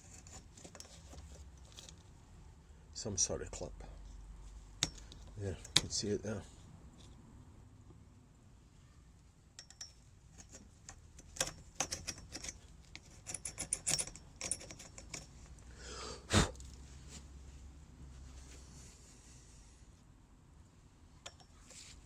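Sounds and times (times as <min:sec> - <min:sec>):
hand tool clicking on metal: 0:04.8 - 0:06.0, 0:11.2 - 0:15.3.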